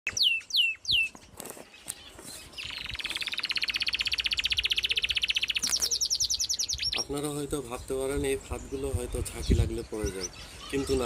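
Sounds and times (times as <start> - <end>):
fast bird trill: 0.1 - 1.2, 1.9 - 7.2.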